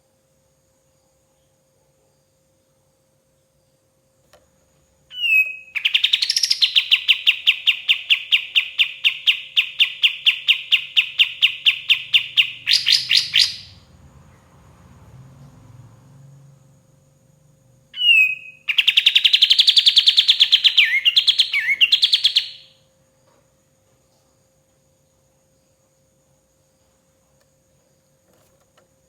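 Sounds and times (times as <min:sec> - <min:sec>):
bird singing a trill: 0:05.0 - 0:13.9, 0:17.9 - 0:22.9.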